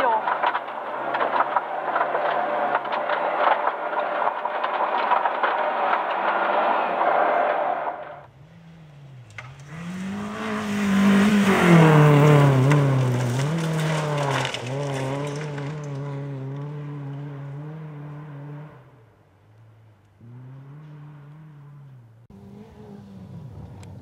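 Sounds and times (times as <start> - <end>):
rally car engine: 0.0 - 24.0.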